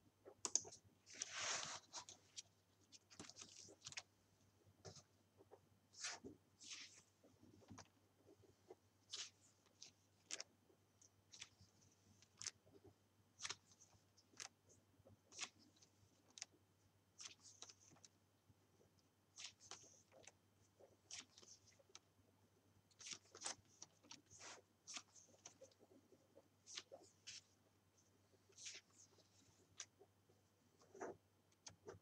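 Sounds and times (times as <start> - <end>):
scratchy strokes on paper: 1.1 - 2.4, 5.9 - 7.4, 23.0 - 27.6.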